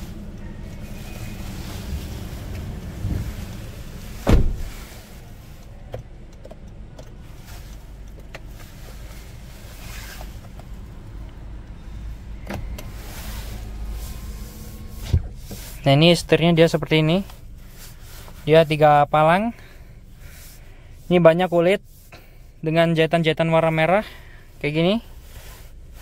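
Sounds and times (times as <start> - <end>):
car engine idling hum: 0.0 - 26.0
loud thump: 4.2 - 4.8.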